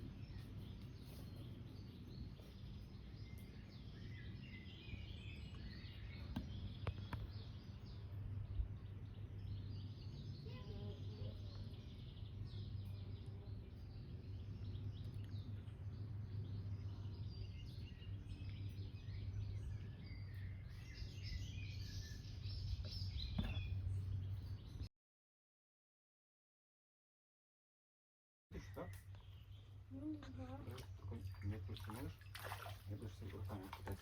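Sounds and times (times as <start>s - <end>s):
songbirds chirping and singing: 0.0s - 24.9s, 28.6s - 34.0s
steady low rumble: 0.0s - 24.9s.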